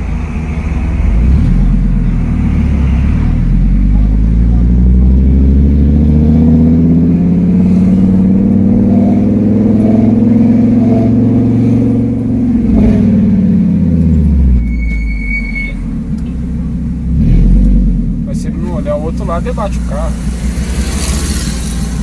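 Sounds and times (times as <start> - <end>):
car engine revving: 0.0 - 22.0
brief high squeal: 14.5 - 15.9.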